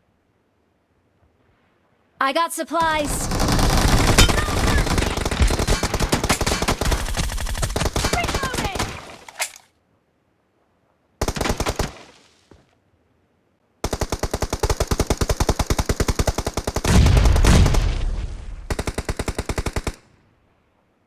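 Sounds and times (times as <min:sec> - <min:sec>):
video game automatic gunfire: 0:02.8 - 0:09.1, 0:13.8 - 0:17.9.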